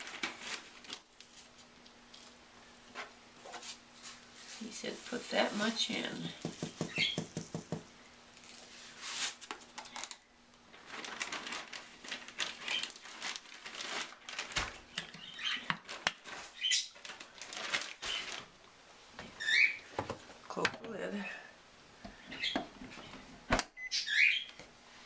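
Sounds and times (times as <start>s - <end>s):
hands clicking and tapping at dishwasher: 6.4s - 7.9s.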